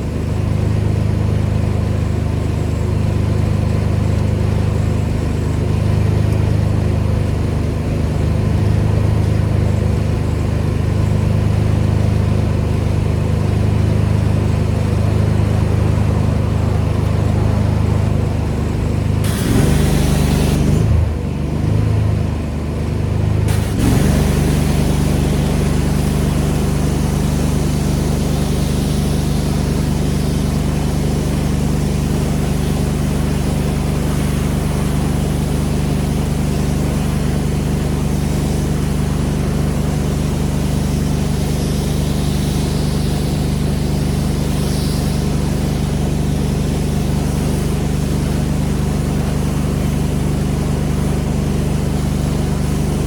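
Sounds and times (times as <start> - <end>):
pressure washer engine running: 0.0 - 53.0
spray hiss: 19.2 - 21.1, 23.5 - 53.0.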